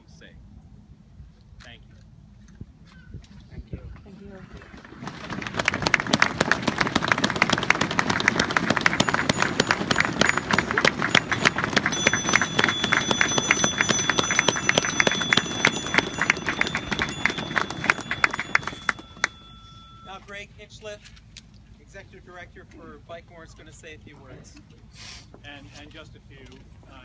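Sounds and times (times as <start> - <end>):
crowd applauding: 4.9 - 20.1
bicycle bells ringing: 7.0 - 20.4.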